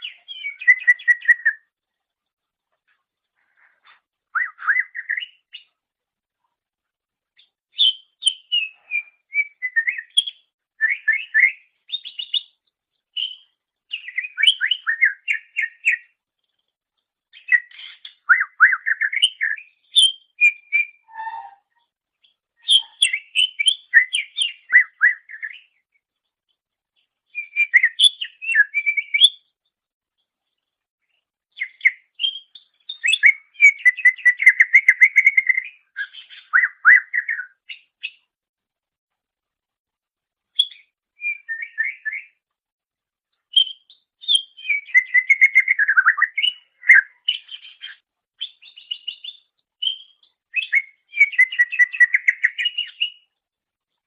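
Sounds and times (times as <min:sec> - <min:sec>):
bird chattering and whistling: 0:00.0 - 0:01.6, 0:17.4 - 0:21.8, 0:22.6 - 0:25.7, 0:43.5 - 0:53.3.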